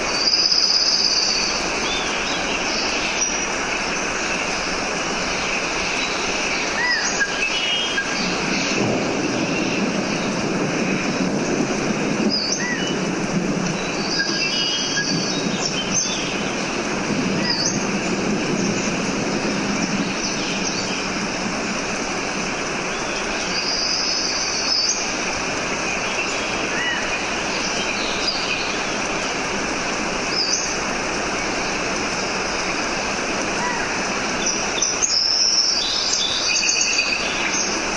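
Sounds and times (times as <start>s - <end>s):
rushing water: 0.0s - 37.9s
bird chirps and calls: 0.1s - 10.4s, 13.7s - 16.7s, 17.3s - 21.3s, 25.9s - 28.9s, 33.6s - 37.8s.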